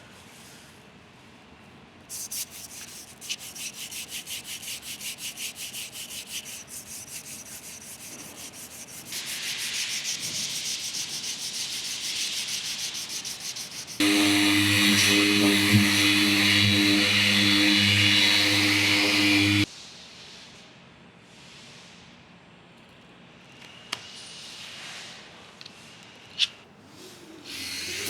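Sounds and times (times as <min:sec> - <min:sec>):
sanding block rubbing metal: 0:02.1 - 0:19.7
machine hum with whine: 0:12.4 - 0:19.7.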